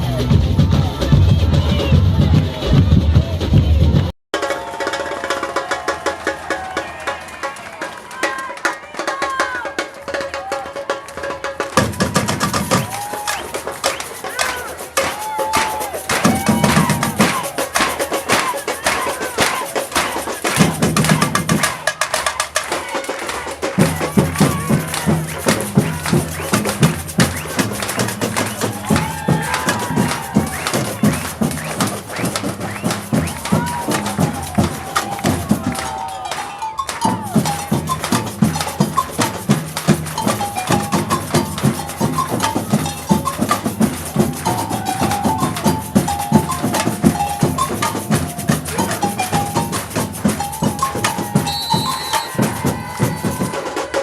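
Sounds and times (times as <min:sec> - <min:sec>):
deep bass drum beats: 0:00.0 - 0:04.1, 0:15.2 - 0:18.5, 0:23.7 - 0:36.0, 0:37.0 - 0:53.6
samba percussion ensemble: 0:00.0 - 0:54.0
snare and high drum strokes: 0:09.1 - 0:54.0.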